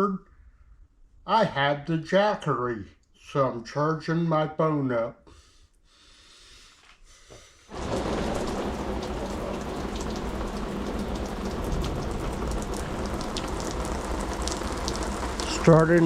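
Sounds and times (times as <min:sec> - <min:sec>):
rain falling steadily: 0:07.7 - 0:16.0.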